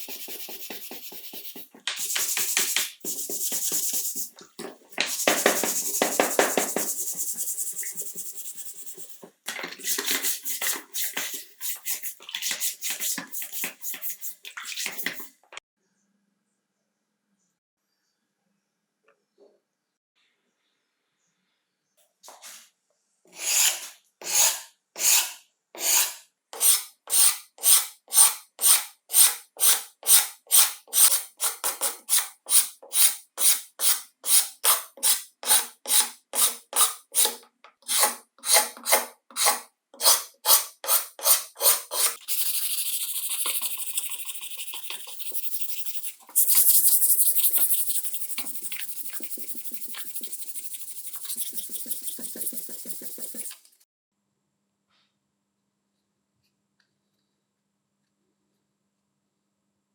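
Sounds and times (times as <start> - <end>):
hand rasping on metal part: 25.8 - 53.6.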